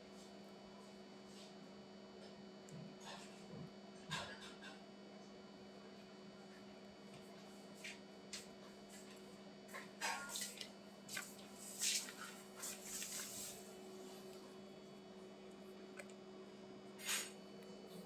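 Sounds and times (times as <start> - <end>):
steady electrical hum: 5.0 - 18.0.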